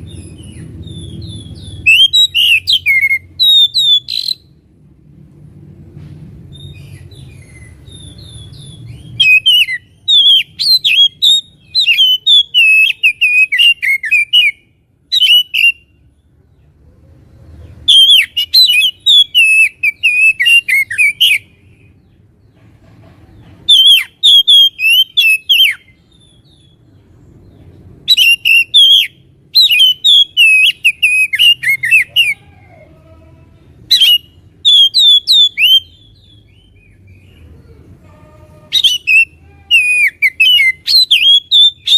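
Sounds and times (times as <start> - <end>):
magpie-robin singing whistled notes: 0.0 - 4.6, 6.5 - 15.9, 17.8 - 21.9, 23.6 - 26.9, 28.0 - 32.4, 33.9 - 37.4, 38.7 - 41.9.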